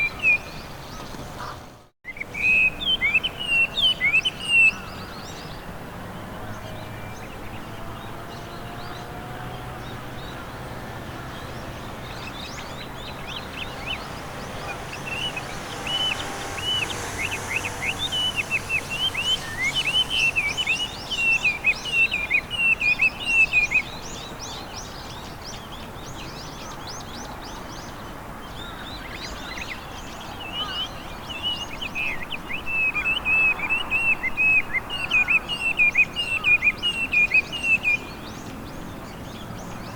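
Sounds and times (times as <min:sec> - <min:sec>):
bird singing whistled runs: 0:11.3 - 0:24.8.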